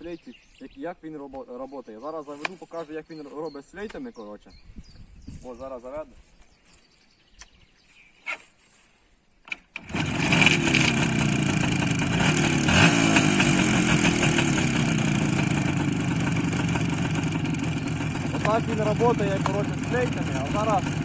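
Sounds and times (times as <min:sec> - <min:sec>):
motorcycle engine starting and revving: 0:09.5 - 0:21.0.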